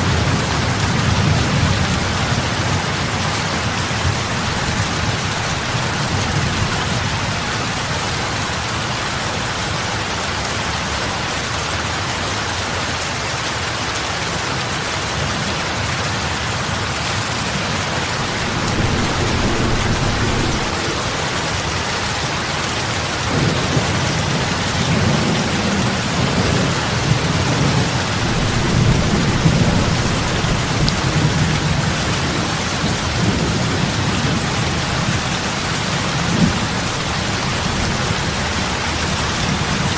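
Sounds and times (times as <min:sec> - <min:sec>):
heavy rain on lake: 0:00.0 - 0:39.9
low rumbling swells: 0:17.6 - 0:23.4.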